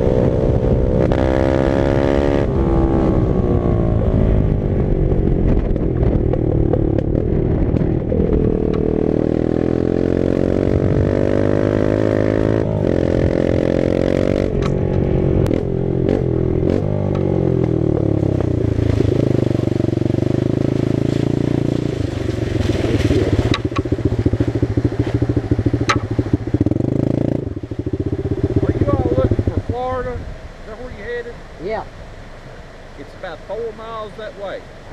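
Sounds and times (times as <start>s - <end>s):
dirt bike engine revving: 0.0s - 4.2s, 8.2s - 30.0s.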